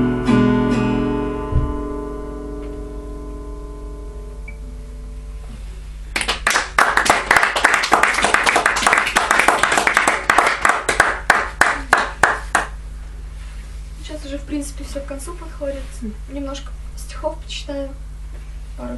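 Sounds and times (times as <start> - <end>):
guitar chord: 0.0 - 5.7
audience applauding: 6.2 - 12.8.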